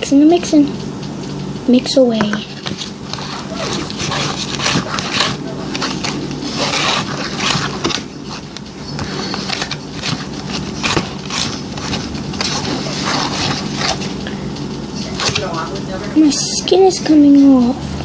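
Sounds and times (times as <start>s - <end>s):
fork scraping through slime: 2.4s - 14.2s.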